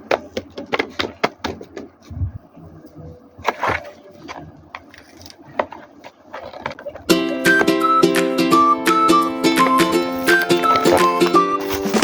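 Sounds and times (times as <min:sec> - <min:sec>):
rustling scrape: 0:08.2 - 0:12.0.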